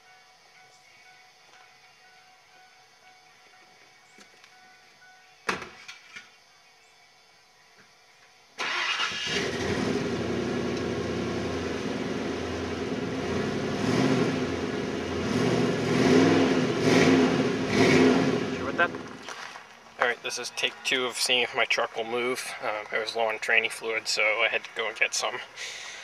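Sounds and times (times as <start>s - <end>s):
truck engine starting and running: 8.6s - 20.1s.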